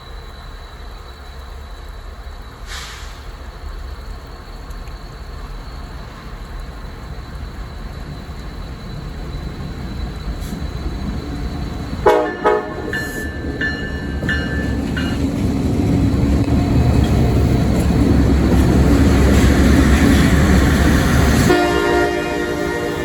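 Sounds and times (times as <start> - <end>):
train engine rumble: 0.0 - 23.0
locomotive horn toots: 12.0 - 13.5, 21.4 - 23.0.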